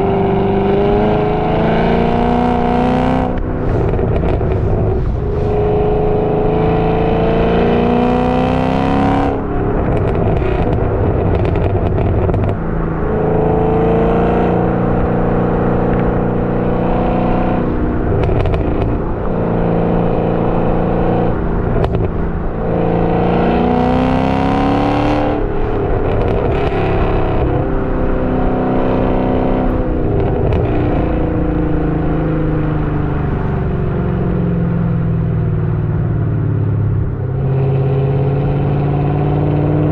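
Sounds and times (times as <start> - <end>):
car engine accelerating: 0.0 - 39.9
exhaust crackles: 1.0 - 7.8, 9.4 - 12.8, 14.6 - 23.4, 25.2 - 28.2.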